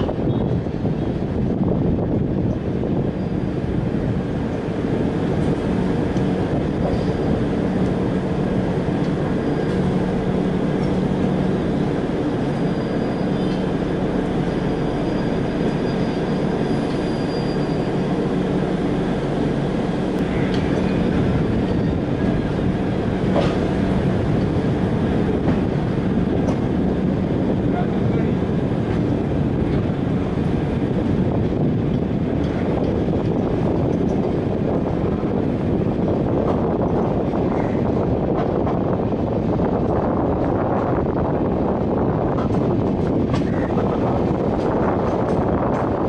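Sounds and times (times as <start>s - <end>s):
train wheels rumbling on rails: 0.0s - 46.0s
faint high squeal: 14.6s - 18.0s.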